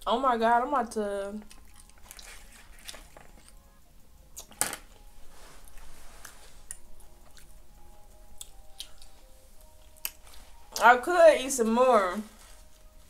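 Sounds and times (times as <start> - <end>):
close-miked chewing: 1.4 - 3.8, 5.6 - 10.8.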